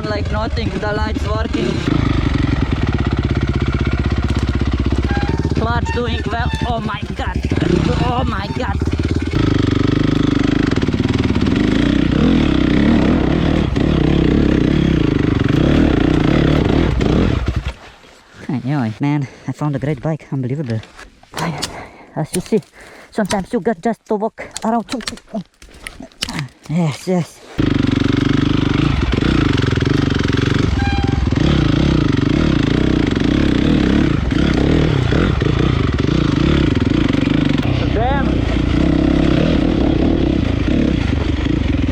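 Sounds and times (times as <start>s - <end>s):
dirt bike engine revving: 0.0s - 17.8s, 27.6s - 41.9s.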